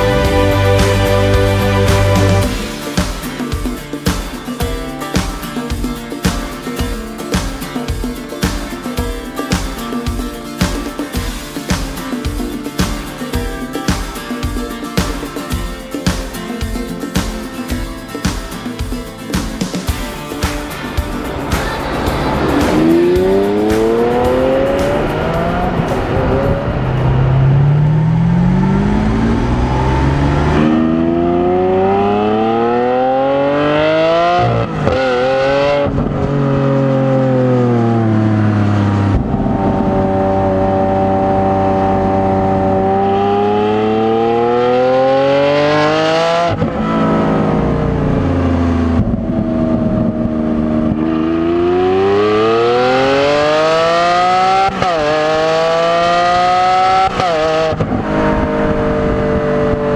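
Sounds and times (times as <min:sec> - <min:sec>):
car engine accelerating: 0:00.0 - 0:03.1, 0:20.1 - 0:59.9
car engine cruising: 0:00.0 - 0:04.7, 0:19.6 - 0:59.9.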